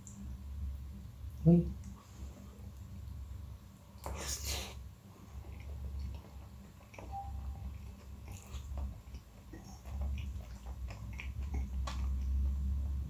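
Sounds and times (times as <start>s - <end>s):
steady low hum: 0.0s - 13.0s
person chewing food: 4.0s - 12.7s.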